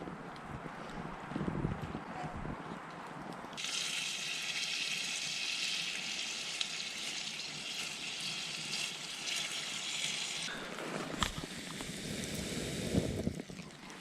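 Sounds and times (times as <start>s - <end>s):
bacon sizzling in a pan: 3.6s - 10.5s.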